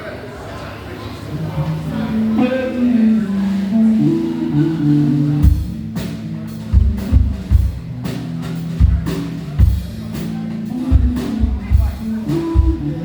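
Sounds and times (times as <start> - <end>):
held low notes: 1.3 - 13.0
live band music: 1.3 - 13.0.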